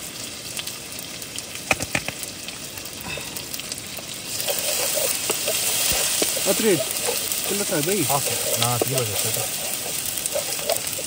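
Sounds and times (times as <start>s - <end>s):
food sizzling in a pan: 0.0s - 11.0s
sharp clicks: 1.7s - 2.2s.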